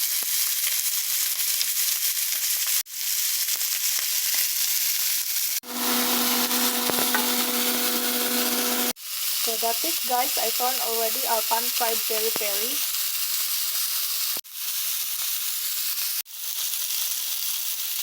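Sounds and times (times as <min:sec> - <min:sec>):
chicken sizzling in a pan: 0:00.0 - 0:18.0
steady low hum: 0:05.6 - 0:09.0.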